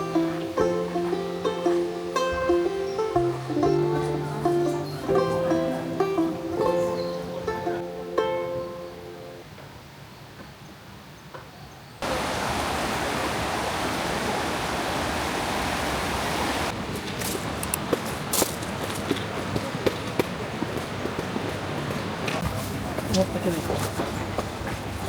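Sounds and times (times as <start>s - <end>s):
water rushing: 0.0s - 8.2s, 12.0s - 19.6s
plucked-string music: 0.0s - 9.5s.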